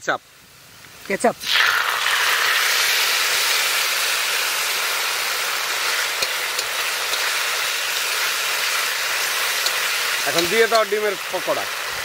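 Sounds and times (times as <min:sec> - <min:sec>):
vegetables sizzling in hot oil: 0:00.0 - 0:12.0
spatula clicking on pan: 0:06.2 - 0:07.3, 0:09.6 - 0:09.8.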